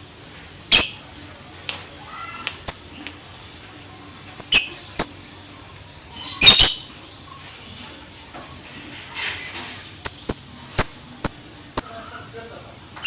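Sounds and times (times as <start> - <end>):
lovebird chirping: 0.6 - 3.1, 4.2 - 7.8, 9.6 - 12.2.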